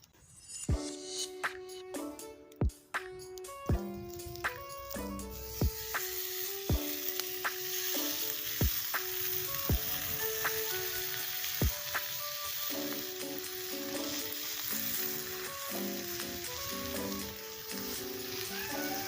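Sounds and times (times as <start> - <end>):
background music with thumps: 0.7 - 7.6, 9.7 - 10.6, 11.6 - 12.1
food sizzling in a pan: 3.4 - 19.0.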